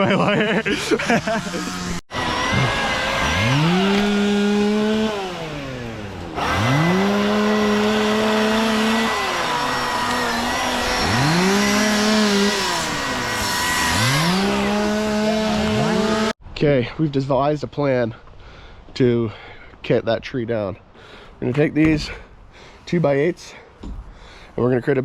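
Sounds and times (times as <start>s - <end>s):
chainsaw revving: 0.3s - 16.4s.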